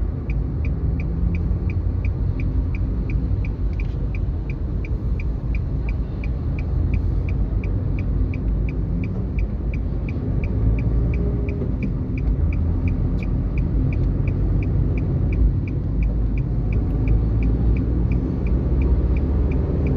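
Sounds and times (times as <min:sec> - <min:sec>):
high-pitched ticking: 0:00.0 - 0:19.9
vehicle engine low rumble: 0:00.0 - 0:19.9.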